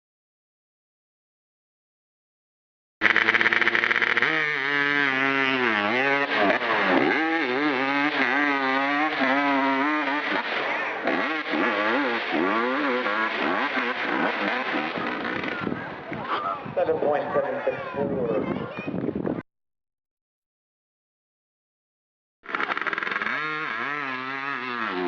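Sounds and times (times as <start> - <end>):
dirt bike engine revving: 3.0 - 16.2, 22.5 - 25.0.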